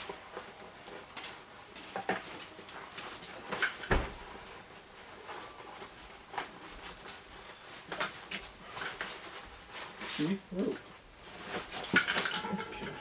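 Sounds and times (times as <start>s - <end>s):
gear rustling and knocking: 0.0s - 13.0s
heavy thump: 3.9s - 4.2s.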